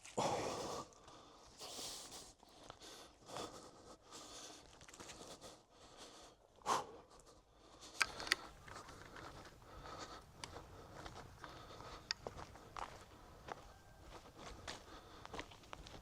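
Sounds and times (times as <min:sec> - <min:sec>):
sharp clicks: 0:08.0 - 0:09.2.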